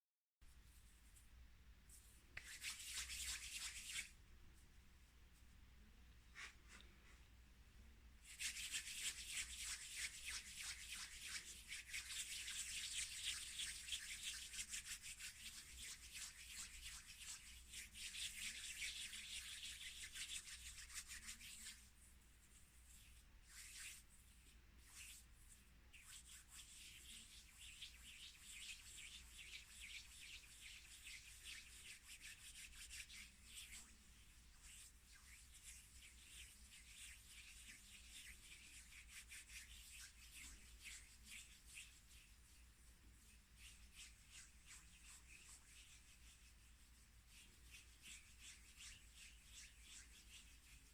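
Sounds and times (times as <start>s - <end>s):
hands rubbing scratchy rustle: 1.9s - 4.7s, 6.3s - 7.3s, 8.2s - 50.9s.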